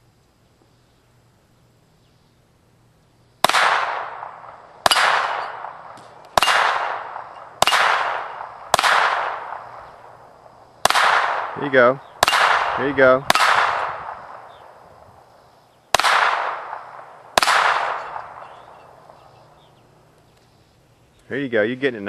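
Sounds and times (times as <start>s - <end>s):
gunshots with echo: 3.4s - 10.2s, 10.8s - 14.7s, 15.9s - 19.3s.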